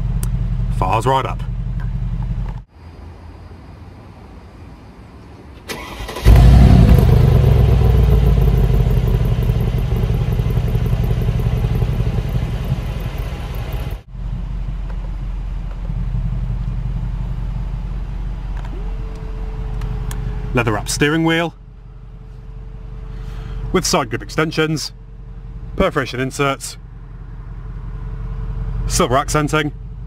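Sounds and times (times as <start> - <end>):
engine cranking: 5.7 - 7.9
car engine idling: 5.8 - 30.0.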